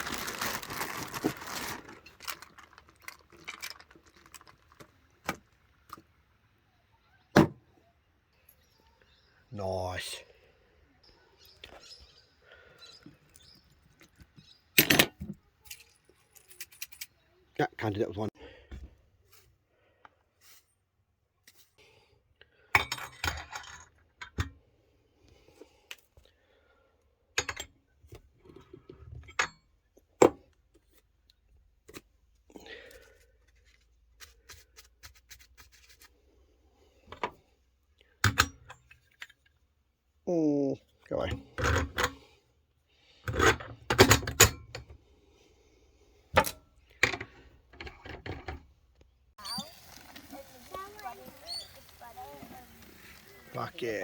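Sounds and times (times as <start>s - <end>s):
small hard objects clinking: 0.0s - 5.2s, 49.4s - 53.9s.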